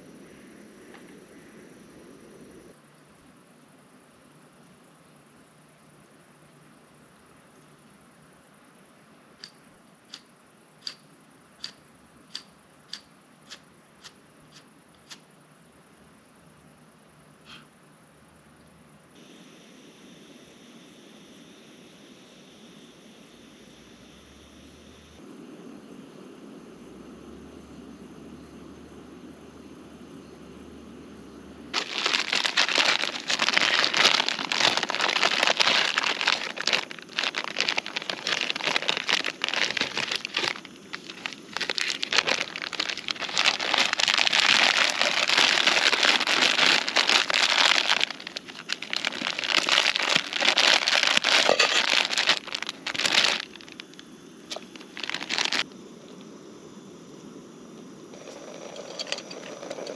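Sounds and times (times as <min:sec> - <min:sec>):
packaging crinkling: 0:31.8 - 0:55.6.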